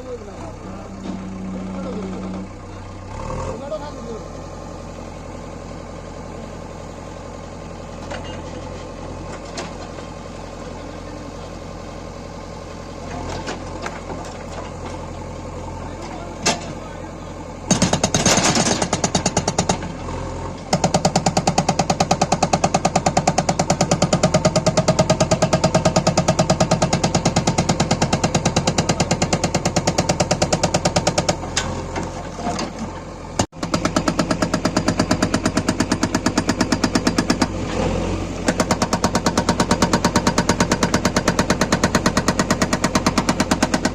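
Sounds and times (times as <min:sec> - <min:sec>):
diesel engine running: 0:00.0 - 0:43.9
hydraulic breaker hammering stone: 0:17.7 - 0:19.9, 0:20.7 - 0:31.4, 0:33.4 - 0:37.6, 0:38.5 - 0:43.9.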